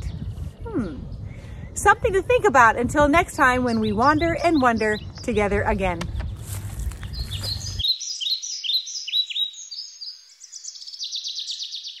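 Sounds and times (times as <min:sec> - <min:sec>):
songbird chirping: 0:00.0 - 0:12.0
rapid high bird trill: 0:07.0 - 0:12.0.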